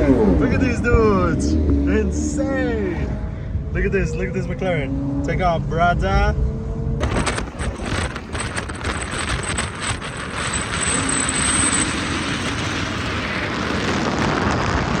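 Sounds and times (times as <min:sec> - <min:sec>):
car engine accelerating hard: 0:00.0 - 0:15.0
sharp exhaust cracks: 0:07.0 - 0:15.0.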